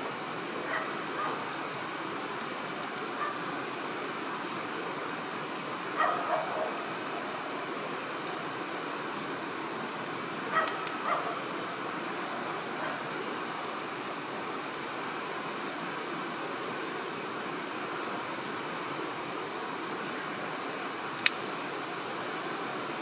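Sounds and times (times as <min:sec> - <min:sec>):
campfire crackling and popping: 0:00.0 - 0:23.0
animal barking calls: 0:00.7 - 0:01.4, 0:06.0 - 0:06.8, 0:10.5 - 0:11.5.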